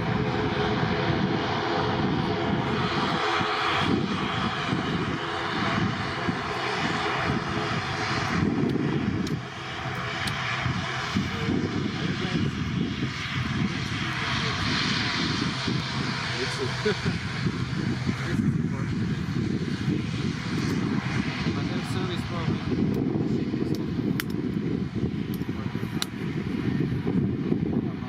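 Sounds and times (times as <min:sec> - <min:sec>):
airplane engine roar: 0:00.0 - 0:28.0.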